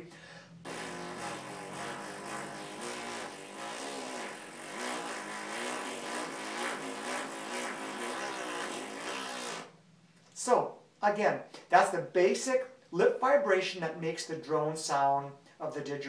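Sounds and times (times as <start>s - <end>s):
lips buzzing raspberry: 0.0s - 9.8s.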